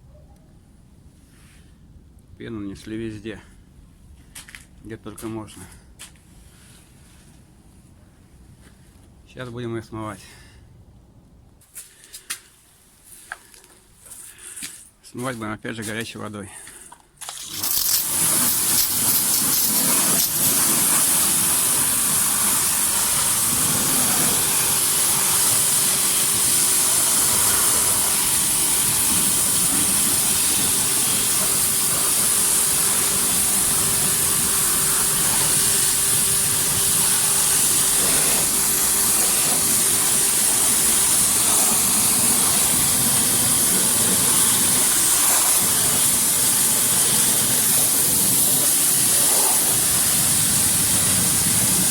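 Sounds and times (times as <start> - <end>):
high-pressure water jet hissing: 17.2 - 51.9.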